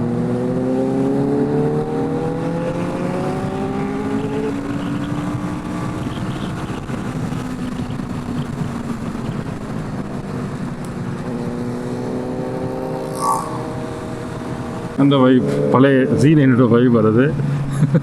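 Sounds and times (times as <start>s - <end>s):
wind rush: 12.2s - 15.0s
brief high-pitched sound: 13.0s - 13.9s.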